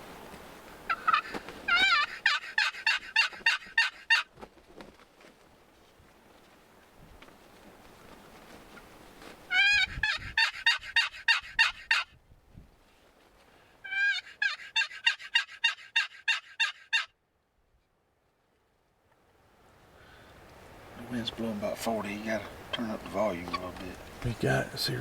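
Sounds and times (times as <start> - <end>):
faint wind hiss: 0.0 - 14.8, 17.2 - 25.0
turkey call yelps: 0.9 - 4.3, 9.5 - 12.2, 13.8 - 17.2, 22.4 - 24.9.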